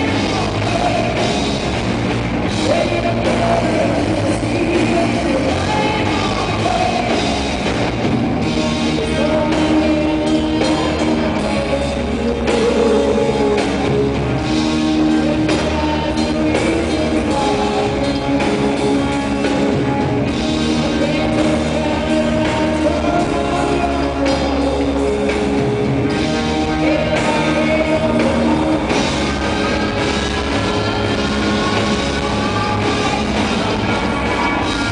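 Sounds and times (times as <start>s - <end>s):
rock band playing live: 0.0s - 34.9s
women singing: 2.6s - 7.3s.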